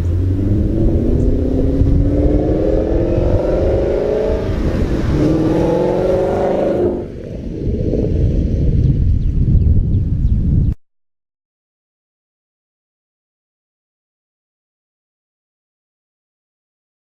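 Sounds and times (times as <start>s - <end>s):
vee eight car accelerating: 0.0s - 7.3s.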